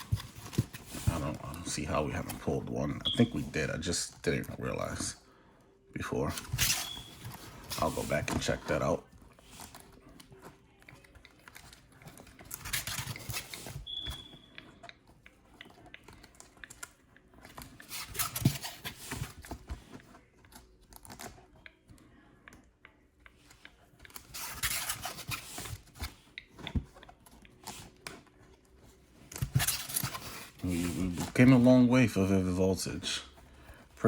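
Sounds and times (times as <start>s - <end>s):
plastic pages rustling: 6.0s - 21.7s, 24.0s - 33.8s.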